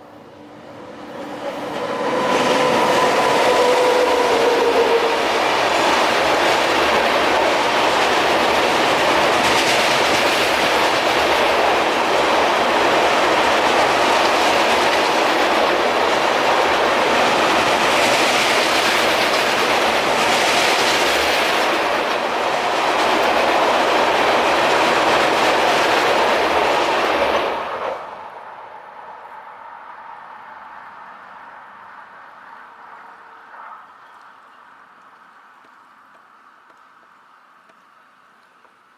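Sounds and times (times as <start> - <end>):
train passing at high speed: 0.0 - 35.0
wheels clacking over rail joints: 0.8 - 28.0.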